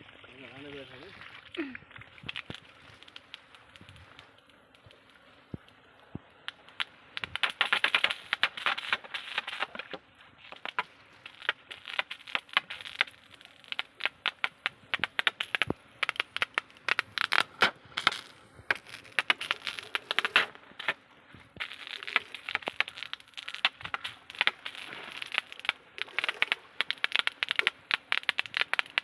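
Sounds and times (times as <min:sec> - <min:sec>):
crackling and crunching clicks: 0:02.2 - 0:29.0.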